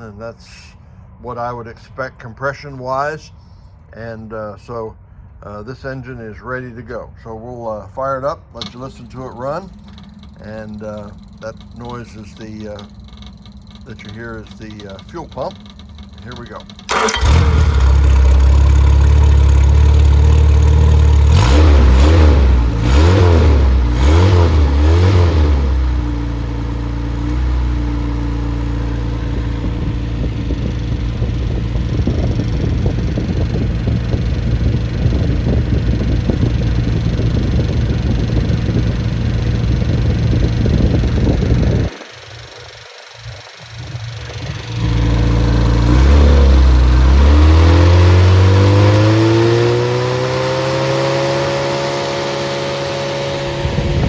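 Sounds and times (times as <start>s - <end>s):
car engine revving and idling: 8.6s - 54.0s.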